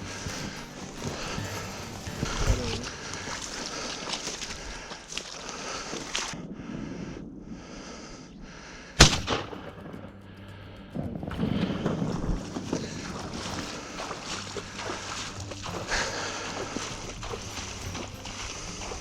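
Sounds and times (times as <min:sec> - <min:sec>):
rustling: 0:00.0 - 0:06.4
shotgun shot with echo: 0:09.0 - 0:09.6.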